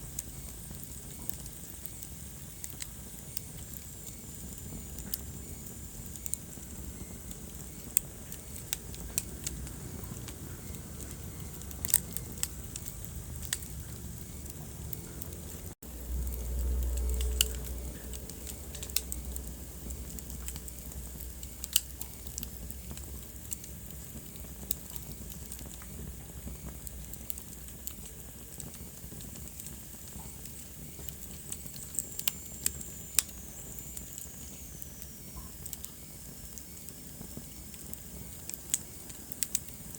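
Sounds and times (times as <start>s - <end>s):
wood fire crackling: 0.0s - 39.9s
low rumble: 8.8s - 22.6s.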